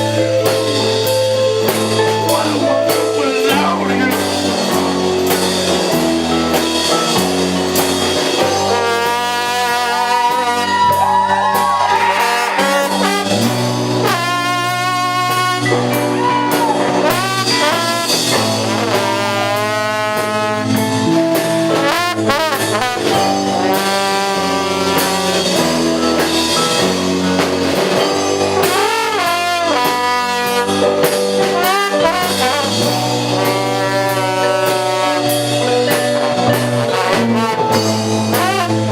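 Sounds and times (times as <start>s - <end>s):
brass horn soloing: 0.0s - 38.9s
live band playing: 0.0s - 38.9s.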